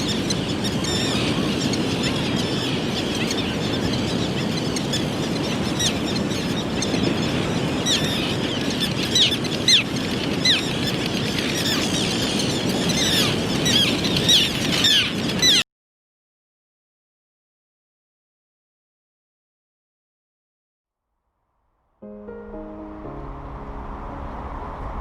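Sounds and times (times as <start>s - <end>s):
small birds chirping: 0.0s - 15.6s.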